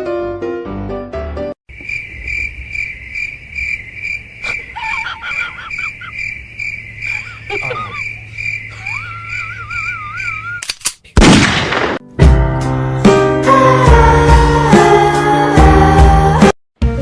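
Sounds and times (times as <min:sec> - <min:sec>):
high even chirping: 0:01.7 - 0:10.6.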